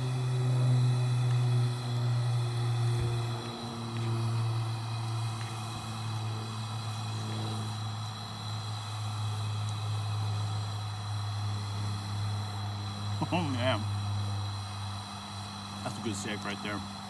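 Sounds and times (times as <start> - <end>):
low mechanical drone: 0.0 - 17.0.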